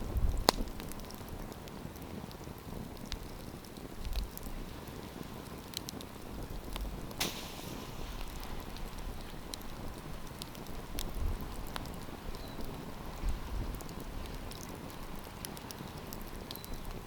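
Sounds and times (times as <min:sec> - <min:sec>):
campfire crackling: 0:00.0 - 0:17.0
low rumbles: 0:06.7 - 0:11.7.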